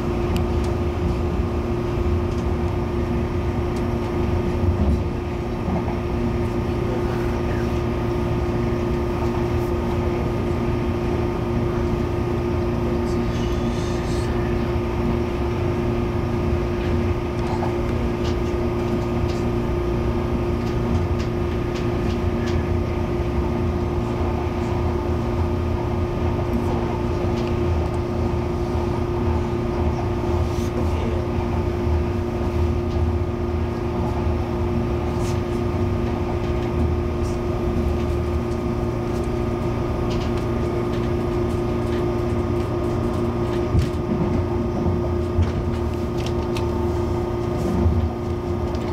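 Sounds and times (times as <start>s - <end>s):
train interior hum: 0.0s - 48.9s.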